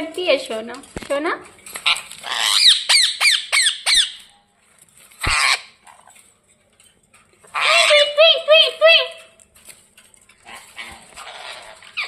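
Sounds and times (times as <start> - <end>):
parakeet shrieking: 1.8 - 4.2, 5.2 - 5.8, 7.5 - 8.2, 10.8 - 12.0.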